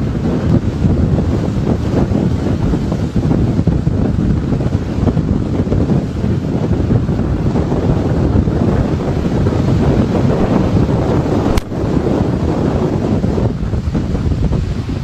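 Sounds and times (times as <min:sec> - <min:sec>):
wind buffeting microphone: 0:00.0 - 0:15.0
short click: 0:11.5 - 0:11.7.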